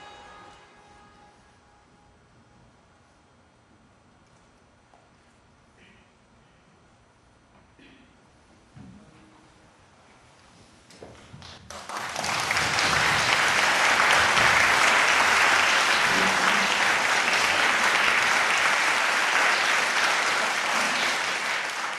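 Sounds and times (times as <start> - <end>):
audience applause: 11.6 - 21.9.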